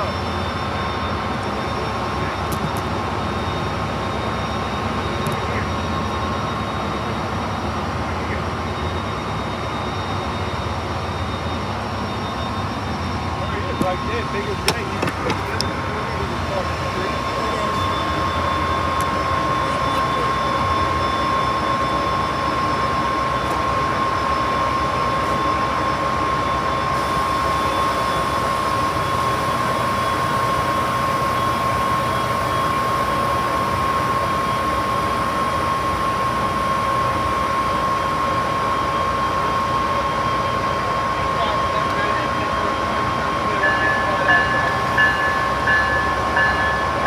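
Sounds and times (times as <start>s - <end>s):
thin high whine: 0.0s - 47.0s
train rumble and hiss: 0.0s - 47.0s.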